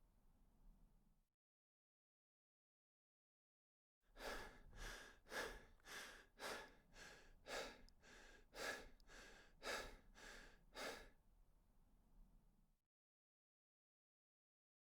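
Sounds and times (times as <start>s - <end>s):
person breathing hard and fast: 4.2s - 11.2s.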